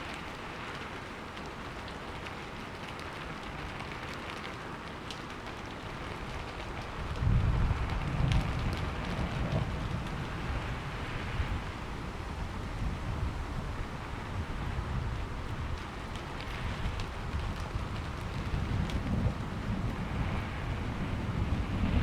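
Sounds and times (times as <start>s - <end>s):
rain falling: 0.0s - 22.0s
thunder rumbling: 7.0s - 11.9s, 13.8s - 22.0s.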